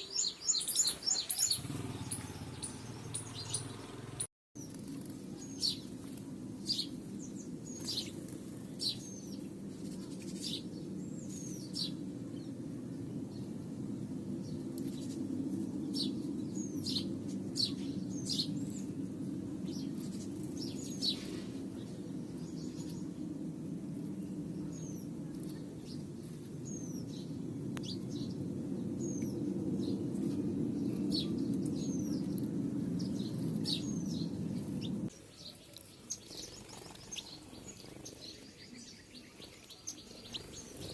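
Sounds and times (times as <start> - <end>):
small birds chirping: 0.0 - 40.9
steady low hum: 4.6 - 35.2.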